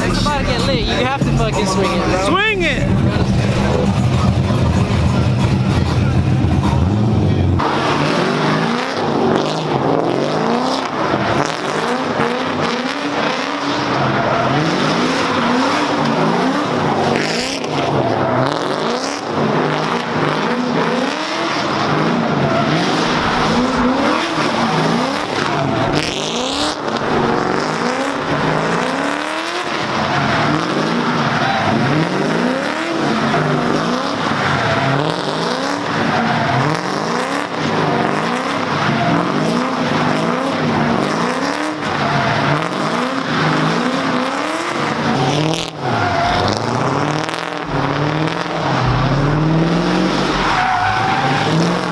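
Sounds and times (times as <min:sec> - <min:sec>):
car engines revving: 0:00.0 - 0:51.9
tyres squealing: 0:42.0 - 0:51.9.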